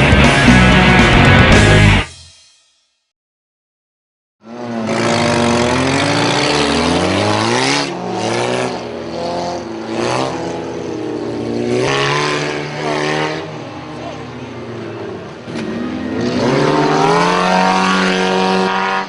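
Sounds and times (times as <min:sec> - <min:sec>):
car engines revving hard: 0:04.4 - 0:19.0.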